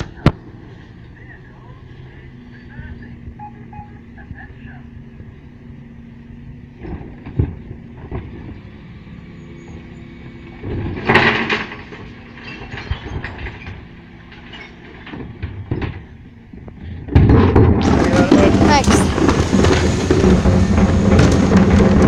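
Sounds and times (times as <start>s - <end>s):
lorry engine running: 0.0s - 22.0s
bin lifter clanking: 17.7s - 22.0s
bin emptying rattling rush: 17.8s - 22.0s.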